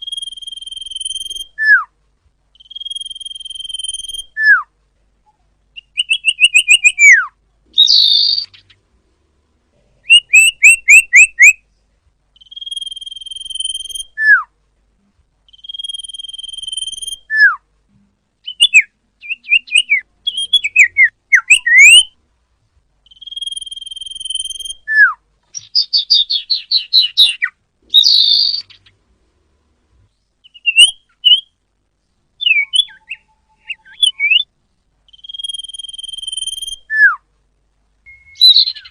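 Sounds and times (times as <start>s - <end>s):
bird singing whistles and chatters: 0.0s - 1.9s, 2.6s - 8.8s, 10.0s - 11.6s, 12.4s - 14.5s, 15.5s - 17.6s, 18.4s - 22.2s, 23.1s - 28.9s, 30.4s - 31.6s, 32.4s - 34.5s, 35.1s - 37.2s, 38.1s - 38.9s.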